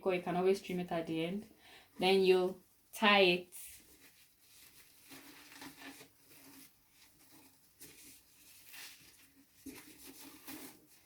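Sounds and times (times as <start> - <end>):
tulle netting rustling: 3.6 - 11.0.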